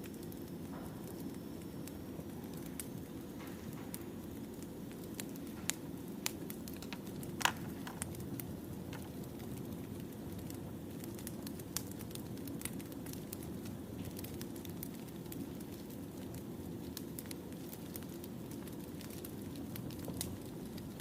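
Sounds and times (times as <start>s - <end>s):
fire crackling and popping: 0.0s - 21.0s
wood fire burning: 0.0s - 21.0s.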